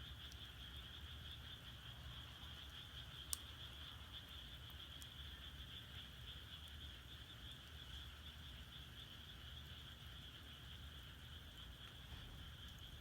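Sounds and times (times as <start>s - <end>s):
firewood crackling: 0.0s - 1.0s, 2.4s - 8.7s, 9.6s - 13.0s
frogs calling: 0.0s - 13.0s.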